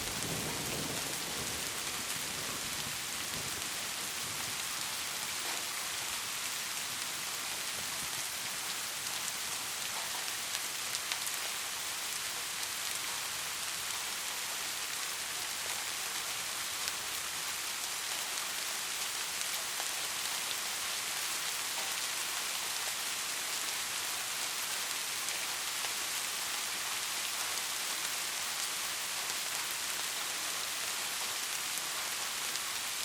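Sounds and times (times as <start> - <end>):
steady rain hiss: 0.0 - 33.0
faint raindrop ticks: 2.8 - 17.1, 18.0 - 23.7.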